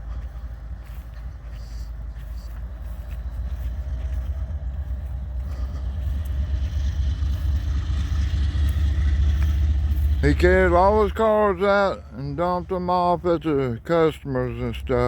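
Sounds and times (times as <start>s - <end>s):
diesel locomotive engine rumble: 0.0s - 15.0s.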